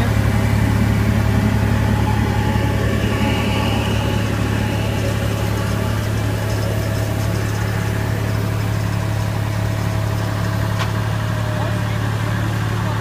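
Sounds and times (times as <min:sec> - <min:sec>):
tractor engine droning: 0:00.0 - 0:13.0.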